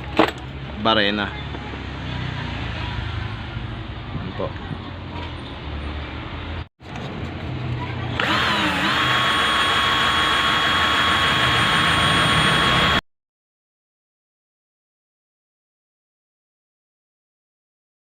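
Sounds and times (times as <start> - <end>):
electric drill whining: 8.2 - 13.0.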